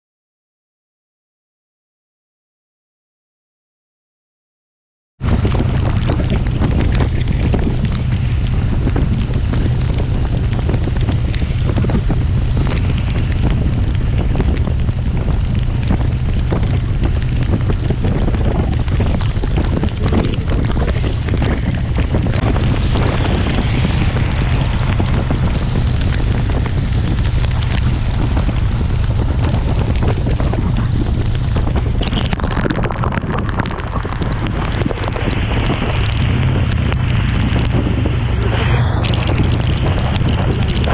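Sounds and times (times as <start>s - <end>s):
rain striking: 5.2s - 40.9s
wind buffeting microphone: 5.2s - 40.9s.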